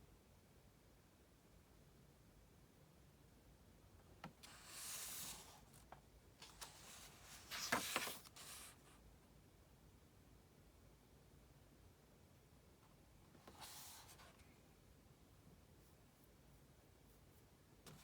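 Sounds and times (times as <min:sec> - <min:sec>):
book page rustling: 0:04.4 - 0:08.8.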